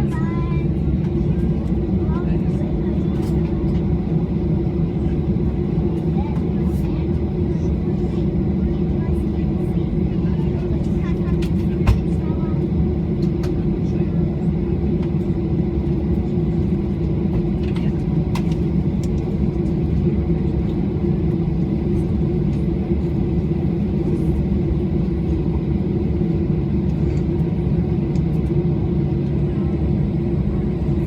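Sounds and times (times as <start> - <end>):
airliner engine drone in cabin: 0.0 - 31.0.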